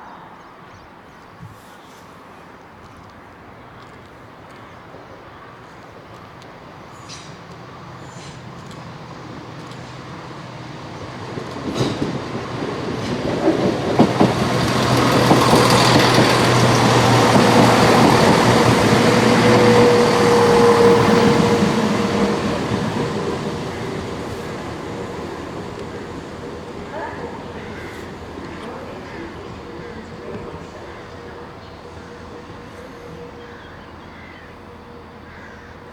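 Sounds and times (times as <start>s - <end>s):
train drive hum: 2.5s - 35.9s
train passing: 3.4s - 35.9s
wheels clicking over rail joints: 11.0s - 32.7s.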